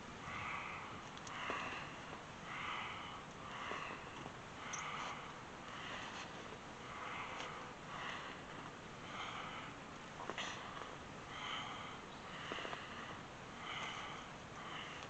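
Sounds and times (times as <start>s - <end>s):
rhythmic breathing through nose: 0.0s - 15.0s
faint clicks: 1.0s - 1.9s.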